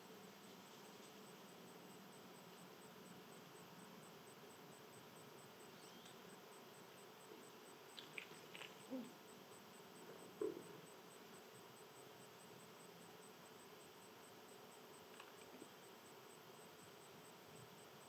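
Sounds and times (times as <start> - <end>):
faint bird chirps: 5.5 - 18.0.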